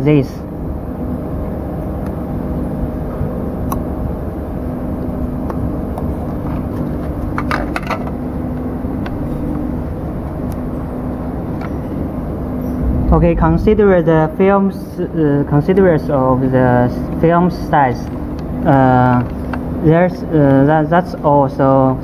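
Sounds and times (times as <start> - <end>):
faint hum: 0.0 - 22.0
low background rumble: 11.8 - 17.3.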